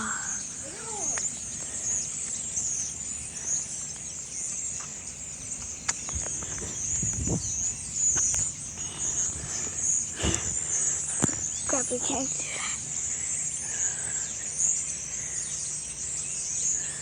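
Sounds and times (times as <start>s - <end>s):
dense chorus of high chirping: 0.0s - 17.0s.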